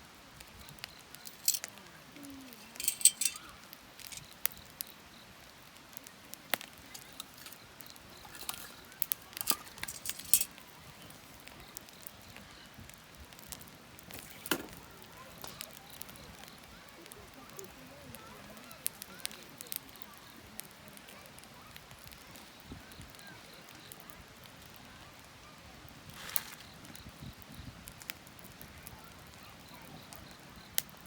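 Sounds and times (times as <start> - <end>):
wood fire crackling and popping: 0.1 - 31.0.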